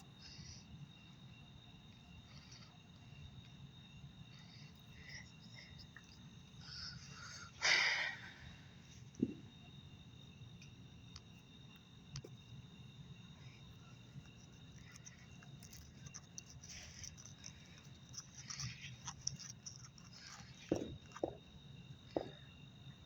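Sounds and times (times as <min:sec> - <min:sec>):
insect chorus trilling: 0:00.0 - 0:23.0
faint clicks and knocks: 0:14.2 - 0:21.5.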